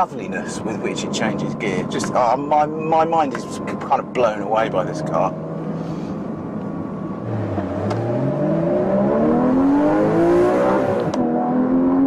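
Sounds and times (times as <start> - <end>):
car engine accelerating hard: 7.1 - 12.0.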